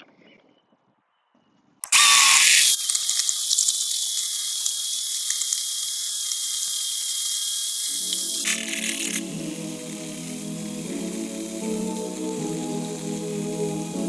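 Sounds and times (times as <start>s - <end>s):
chainsaw cutting wood: 6.4s - 12.9s
music: 8.0s - 14.0s.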